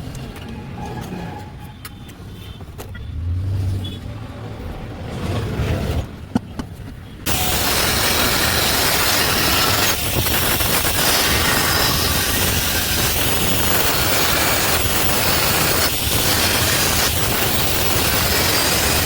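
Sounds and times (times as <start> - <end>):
welding arc crackling hiss: 7.3 - 19.0.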